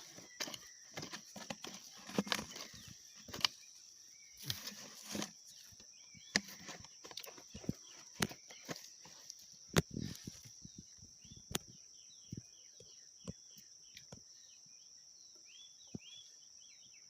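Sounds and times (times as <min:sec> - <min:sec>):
close knocks and scrapes: 0:00.0 - 0:03.7, 0:04.3 - 0:10.6
insects droning: 0:00.0 - 0:17.0.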